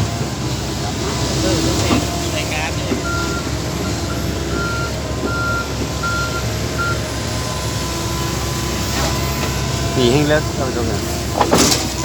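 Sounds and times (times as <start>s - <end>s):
engine rumbling: 0.0s - 12.0s
reversing alarm beeps: 1.8s - 10.6s.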